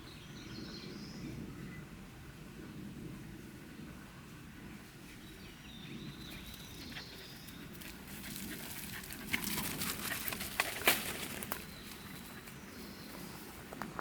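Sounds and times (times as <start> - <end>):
footsteps through leaves and twigs: 7.7 - 14.0.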